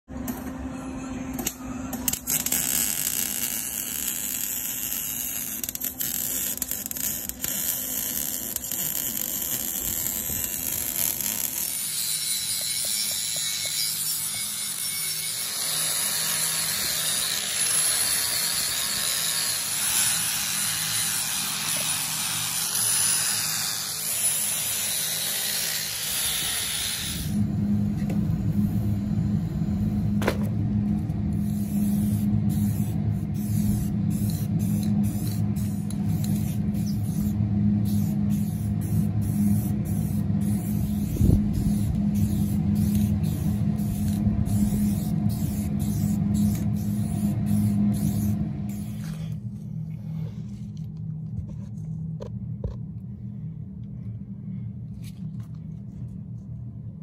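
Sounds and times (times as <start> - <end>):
grinder cutting steel pipe: 1.4 - 27.4
welding crackling buzz: 1.4 - 49.3.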